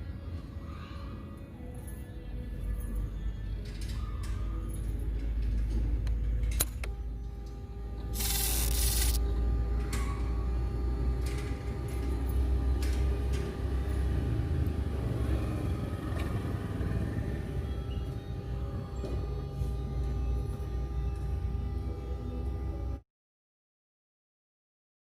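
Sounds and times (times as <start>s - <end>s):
motorcycle engine rumbling: 9.2s - 23.0s.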